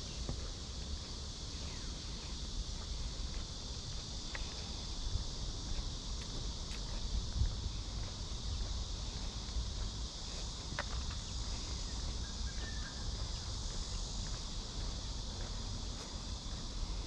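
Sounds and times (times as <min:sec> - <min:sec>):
cicadas shrilling: 0:00.0 - 0:17.0
wind rumble on microphone: 0:02.3 - 0:17.0.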